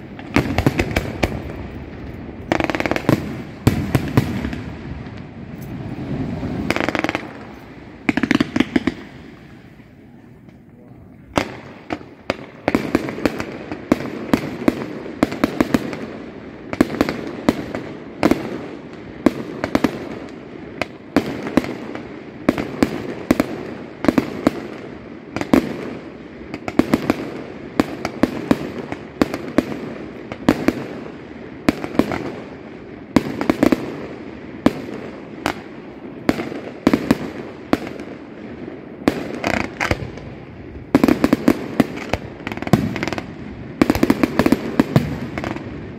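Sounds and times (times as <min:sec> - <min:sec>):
fireworks bangs and crackles: 0:00.0 - 0:45.9
rumble of firework launches: 0:00.1 - 0:09.9.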